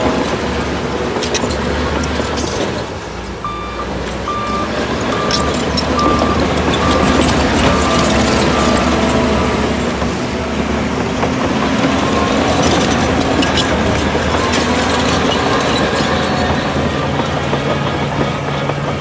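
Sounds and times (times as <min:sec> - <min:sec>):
metallic clanks and rattles: 0:00.0 - 0:03.4, 0:04.2 - 0:19.0
diesel machinery running: 0:00.0 - 0:19.0.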